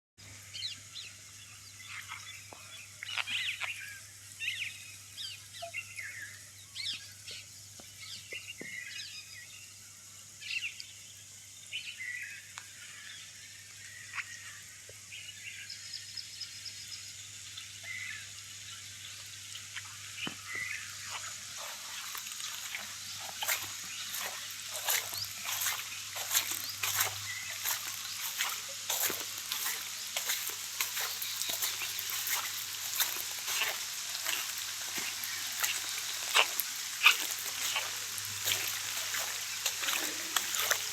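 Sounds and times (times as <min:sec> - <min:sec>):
steady high hiss: 0:00.2 - 0:40.9
birds chirping: 0:01.7 - 0:09.1, 0:17.8 - 0:40.9.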